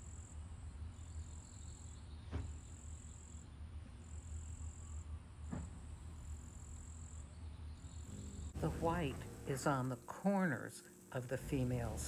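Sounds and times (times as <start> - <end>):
low steady hum: 3.4 - 12.0.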